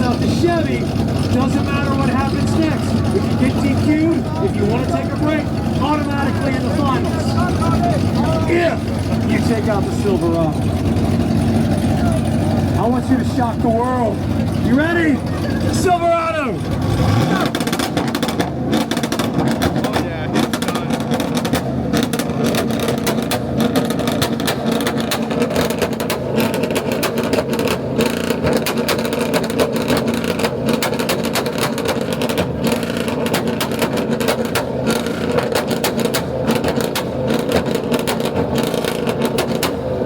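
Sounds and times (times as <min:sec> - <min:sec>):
engine rev limiter pops: 0:16.8 - 0:40.0.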